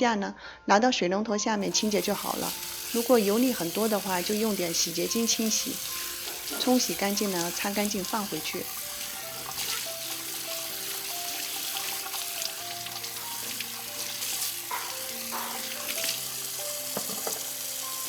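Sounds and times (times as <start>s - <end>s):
water running from tap: 1.6s - 18.0s
glass clattering: 17.0s - 17.4s.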